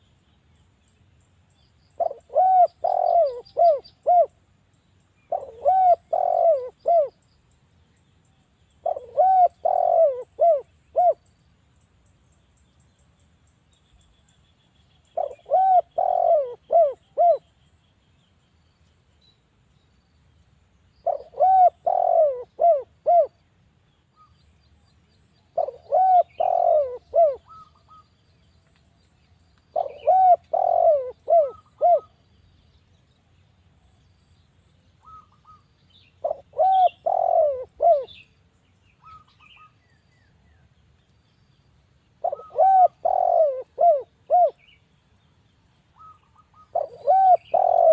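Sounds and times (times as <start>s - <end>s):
faint high bird chirps: 0.0s - 20.0s, 24.0s - 47.9s
dove cooing: 2.0s - 4.4s, 5.3s - 7.2s, 8.8s - 11.2s, 15.2s - 17.5s, 21.0s - 23.4s, 25.6s - 28.0s, 29.7s - 32.2s, 35.0s - 35.6s, 36.2s - 38.2s, 42.2s - 44.7s, 46.0s - 47.9s.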